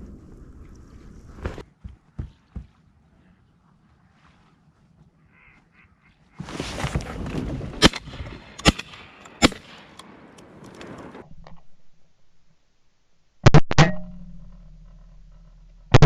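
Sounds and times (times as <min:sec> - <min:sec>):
ducks quacking: 0:05.2 - 0:06.6
shotgun shots: 0:07.8 - 0:10.2.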